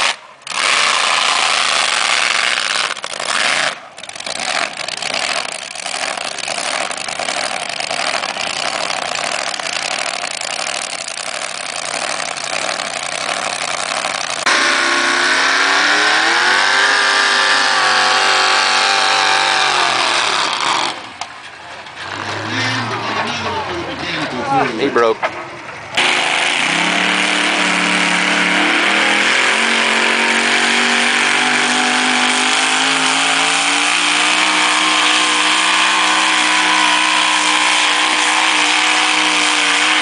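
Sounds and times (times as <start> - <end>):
tractor engine running under load: 2.8 - 14.5.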